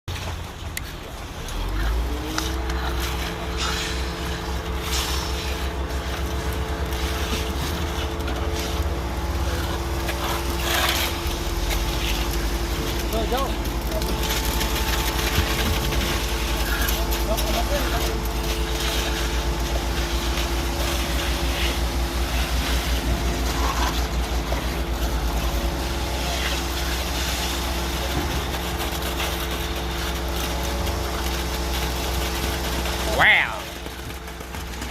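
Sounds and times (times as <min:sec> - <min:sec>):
concrete pump engine rumble: 0:00.1 - 0:34.9
steady whine: 0:00.8 - 0:34.9.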